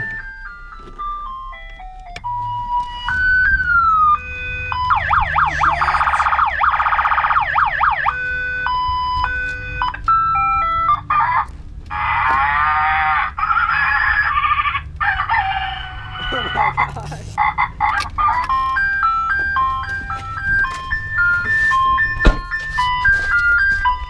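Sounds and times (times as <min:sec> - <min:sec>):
rising and falling siren wail: 0:00.0 - 0:24.0
stepped electronic beeps: 0:04.8 - 0:06.6.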